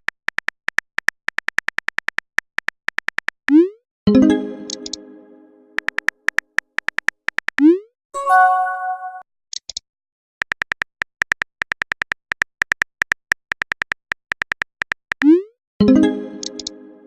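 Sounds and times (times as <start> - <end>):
rapid keyboard clicks: 0.0 - 3.4, 5.8 - 7.6, 10.4 - 15.2
phone chime: 8.2 - 9.2.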